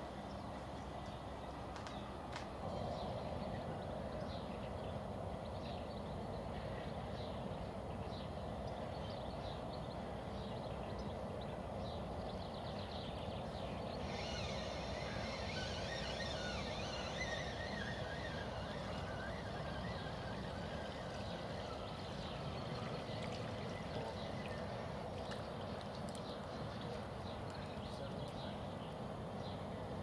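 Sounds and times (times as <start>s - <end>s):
small birds chirping: 6.7s - 29.6s.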